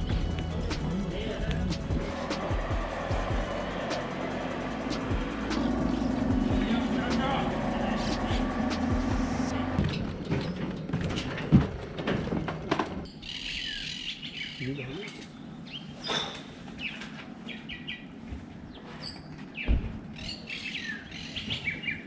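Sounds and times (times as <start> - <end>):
songbird chirping: 13.1 - 18.1.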